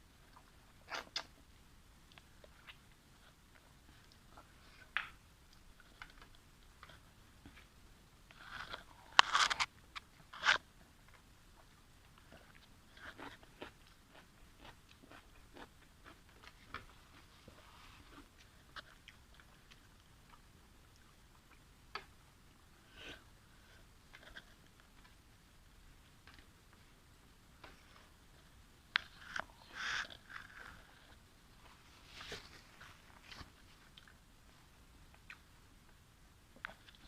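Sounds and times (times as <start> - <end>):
person chewing: 10.4 - 22.1.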